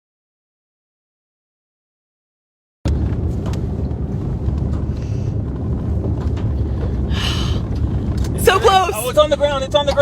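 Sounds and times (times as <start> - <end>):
car rumbling in motion: 2.9 - 10.0.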